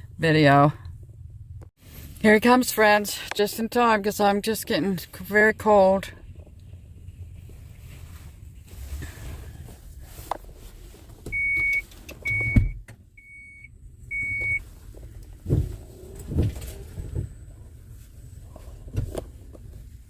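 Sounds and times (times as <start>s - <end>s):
car warning chime beeping: 11.3s - 14.6s
thumps and rustling: 14.8s - 17.4s, 18.0s - 20.0s.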